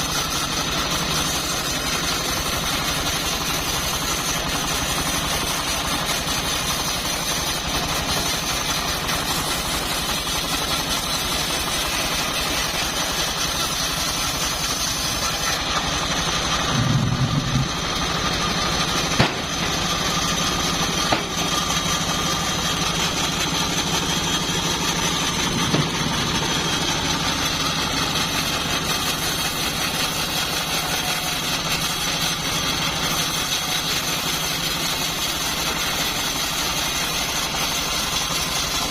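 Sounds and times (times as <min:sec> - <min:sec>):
bandsaw mill droning: 0:00.0 - 0:38.9
sharp knocks: 0:19.1 - 0:19.8, 0:21.1 - 0:21.6, 0:25.6 - 0:26.1.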